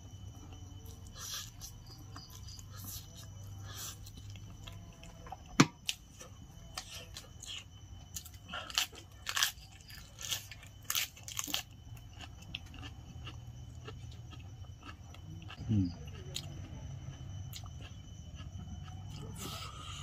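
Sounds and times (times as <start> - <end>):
chewing and mouth noises: 6.8 - 20.0.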